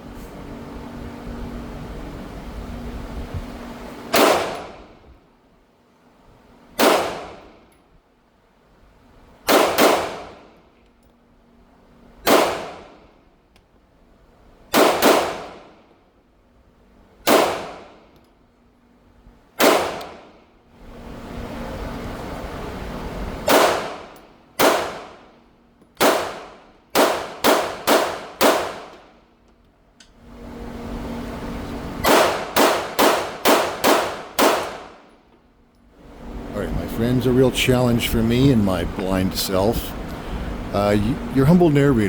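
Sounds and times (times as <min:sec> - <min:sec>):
pistol shots: 0:04.1 - 0:04.9, 0:06.8 - 0:07.6, 0:09.4 - 0:10.6, 0:12.2 - 0:13.1, 0:14.7 - 0:15.8, 0:17.2 - 0:18.1, 0:19.6 - 0:20.4, 0:23.4 - 0:25.3, 0:26.0 - 0:29.2, 0:32.0 - 0:35.1.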